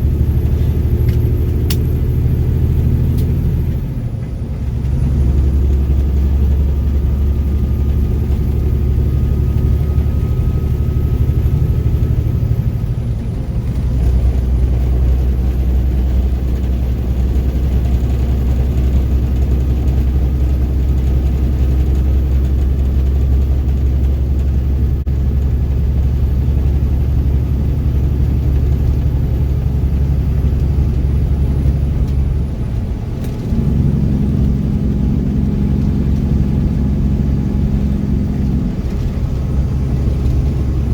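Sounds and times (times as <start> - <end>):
truck diesel engine running: 0.0 - 40.9.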